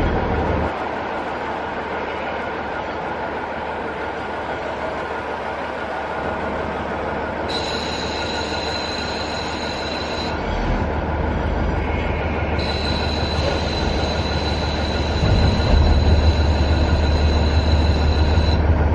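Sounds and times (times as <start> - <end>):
diesel engine rumble: 0.0 - 18.9
train wheels on rail: 0.0 - 18.9
high wheel squeal: 7.4 - 18.7.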